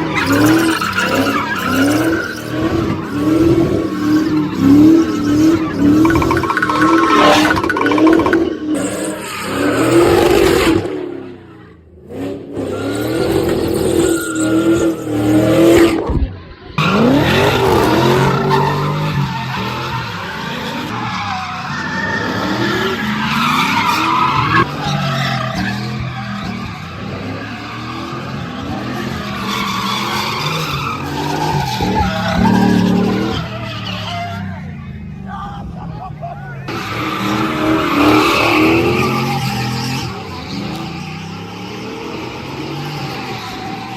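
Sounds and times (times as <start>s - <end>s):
car engines revving: 0.0s - 43.9s
tyres squealing: 16.8s - 43.9s.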